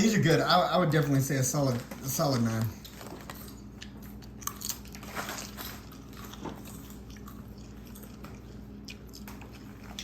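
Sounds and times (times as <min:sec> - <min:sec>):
crunching potato chips: 0:02.2 - 0:10.0.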